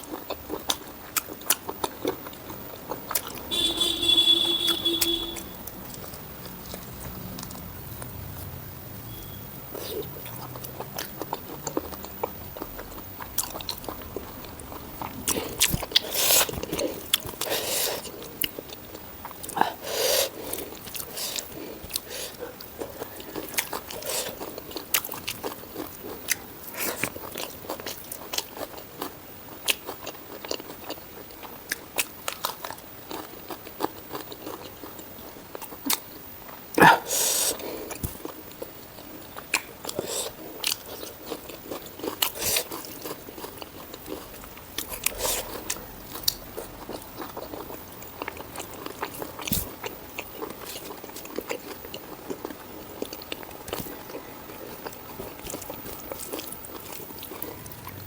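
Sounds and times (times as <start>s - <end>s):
wet chewing clicks: 0.0s - 58.0s.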